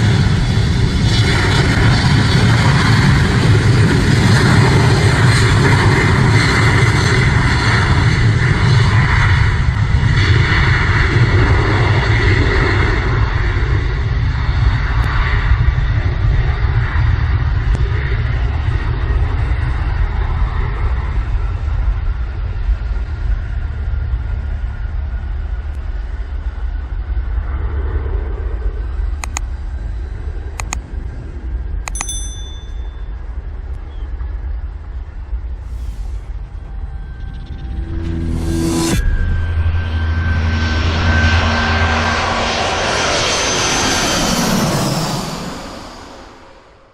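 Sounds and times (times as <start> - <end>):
aircraft engines roaring: 0.0 - 46.9
sharp clicks: 29.2 - 29.5, 30.6 - 30.8, 31.9 - 32.2.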